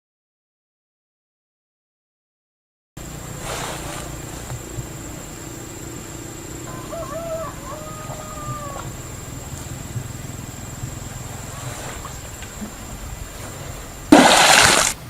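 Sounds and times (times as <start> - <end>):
steady low hum: 3.0 - 15.0
rooster crowing: 6.3 - 11.1.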